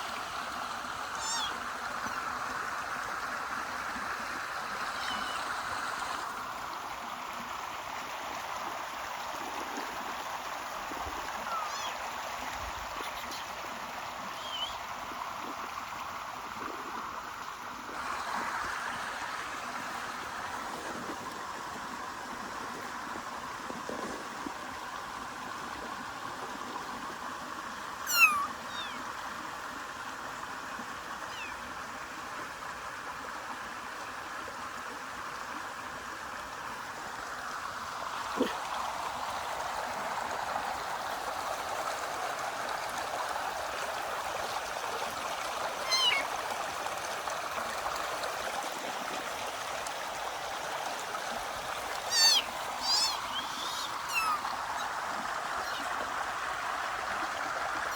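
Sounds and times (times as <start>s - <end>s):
stream water running: 0.0s - 57.9s
kitten meowing: 1.1s - 1.6s, 4.9s - 5.5s, 11.5s - 12.0s, 28.1s - 29.0s, 31.3s - 31.6s, 45.8s - 46.3s, 52.0s - 54.9s, 55.6s - 56.0s.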